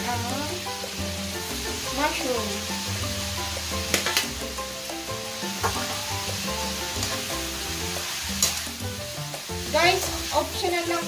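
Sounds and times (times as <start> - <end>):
meat sizzling in a wok: 0.0 - 11.0
utensils knocking against pan: 3.8 - 4.4, 5.6 - 6.0
metal spatula stirring: 8.1 - 8.8.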